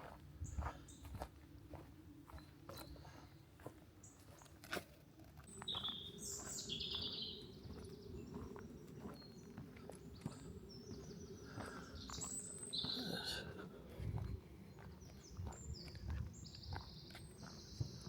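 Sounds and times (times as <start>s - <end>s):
faint footsteps on forest trail: 0.0s - 18.0s
songbirds singing: 0.4s - 1.3s, 5.4s - 18.0s.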